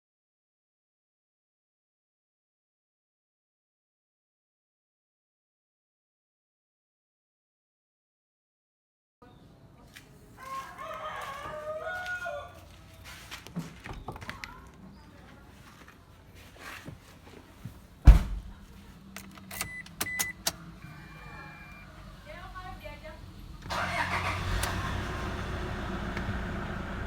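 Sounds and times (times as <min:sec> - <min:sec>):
rooster crowing: 0:10.4 - 0:12.9
loud thump: 0:18.0 - 0:18.6.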